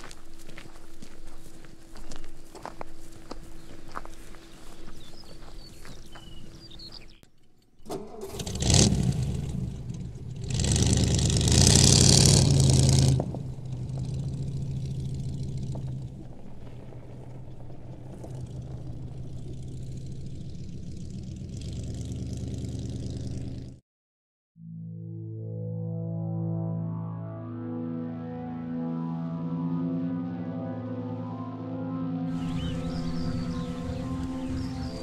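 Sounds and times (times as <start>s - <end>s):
car engine starting and revving: 7.8s - 23.8s, 32.3s - 35.0s.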